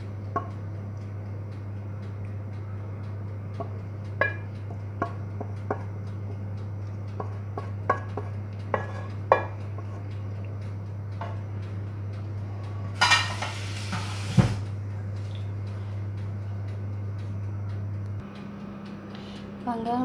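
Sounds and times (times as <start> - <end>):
steady low hum: 0.0 - 20.0
kitchen utensils and dishes clinking: 13.0 - 14.6.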